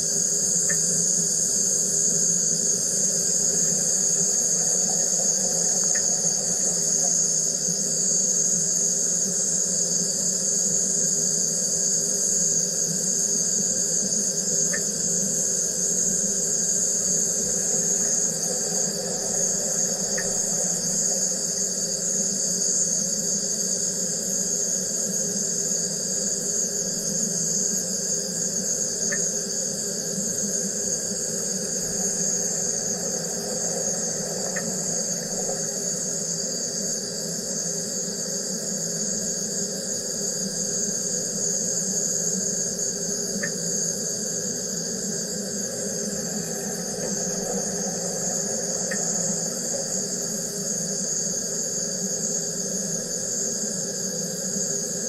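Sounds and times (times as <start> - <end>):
faint ticks: 0.6 - 1.0, 5.7 - 7.3, 14.6 - 15.0, 20.1 - 20.5, 29.0 - 29.3, 33.9 - 35.8, 43.4 - 43.6, 48.8 - 49.2.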